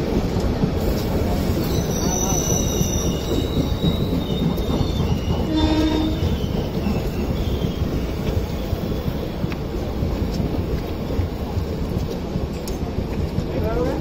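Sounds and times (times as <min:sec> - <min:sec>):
train wheels rumbling: 0:00.0 - 0:14.0
high wheel squeal: 0:01.4 - 0:09.4
train horn: 0:05.5 - 0:06.3.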